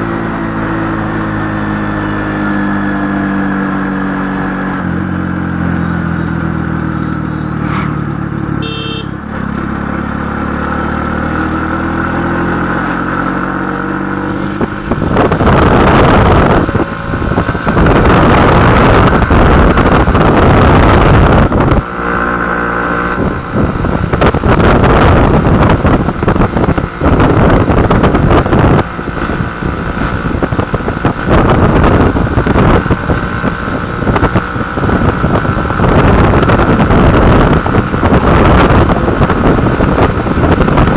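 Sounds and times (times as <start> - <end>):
vehicle engine running: 0.0 - 40.9
wind noise on microphone: 11.6 - 40.9.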